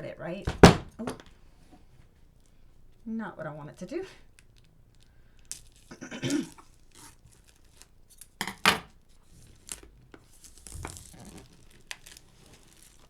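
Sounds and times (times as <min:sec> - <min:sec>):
packaging tearing and crinkling: 0:04.3 - 0:08.4, 0:09.0 - 0:13.0.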